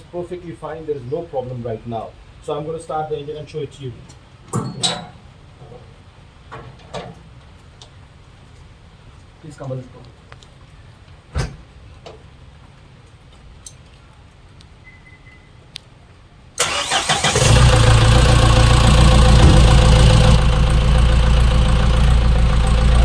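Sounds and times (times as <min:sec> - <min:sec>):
diesel engine idling: 0:16.6 - 0:23.0
diesel engine starter cranking: 0:16.6 - 0:23.0.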